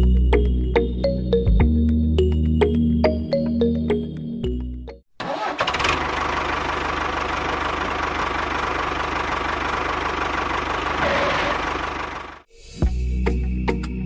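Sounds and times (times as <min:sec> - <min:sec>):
small engine idling: 0:05.2 - 0:12.5.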